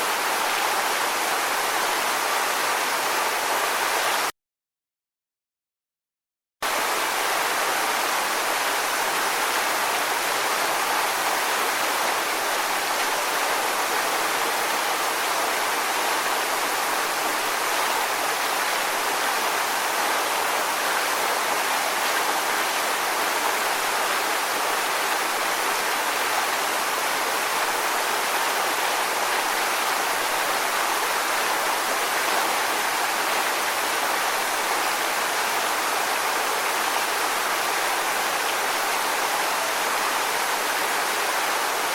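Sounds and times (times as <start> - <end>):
rushing water: 0.0 - 4.3, 6.6 - 41.9.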